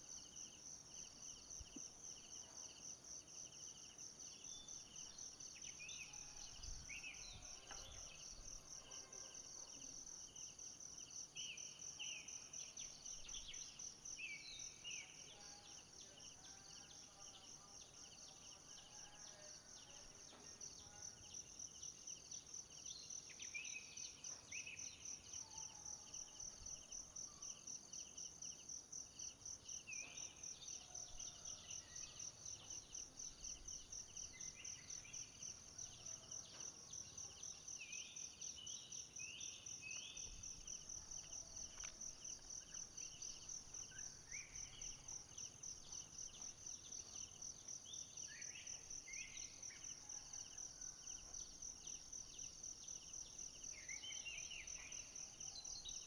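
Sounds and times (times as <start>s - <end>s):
insects trilling: 29.2s - 56.0s.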